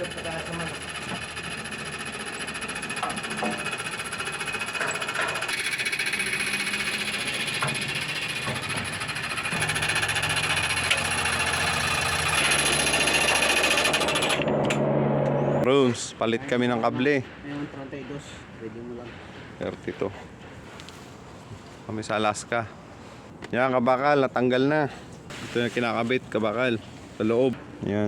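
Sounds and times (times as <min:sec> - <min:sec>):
engine and hydraulic pump rattling: 0:00.0 - 0:15.7.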